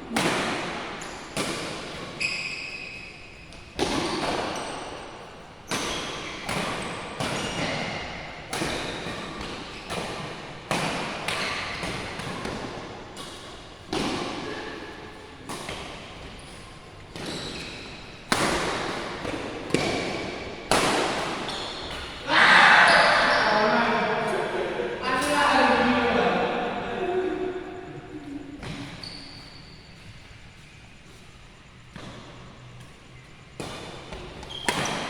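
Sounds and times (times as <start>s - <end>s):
shoe squeak: 2.1s - 3.6s, 5.7s - 7.7s, 16.4s - 18.1s, 21.4s - 22.1s, 22.7s - 23.8s, 28.2s - 31.0s, 34.4s - 35.0s
badminton rackets hitting shuttlecock: 3.8s - 4.9s, 5.7s - 14.6s, 17.1s - 22.3s.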